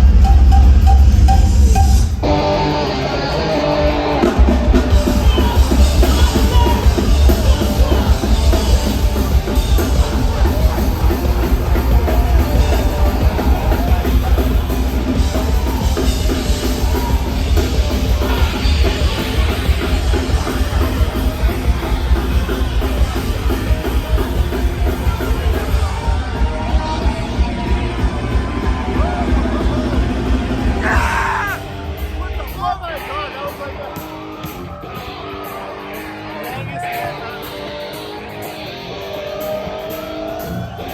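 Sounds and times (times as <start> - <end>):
punk band playing live: 0.0 - 40.9.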